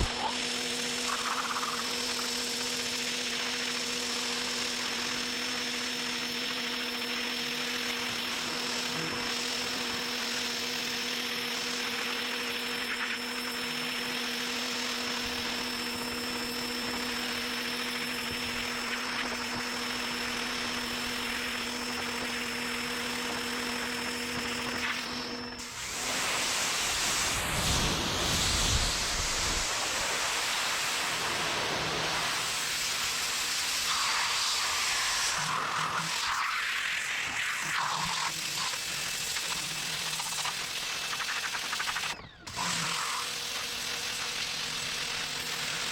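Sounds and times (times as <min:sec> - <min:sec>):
motor hum: 0:00.0 - 0:36.3
pressure washer spraying water: 0:25.6 - 0:36.9.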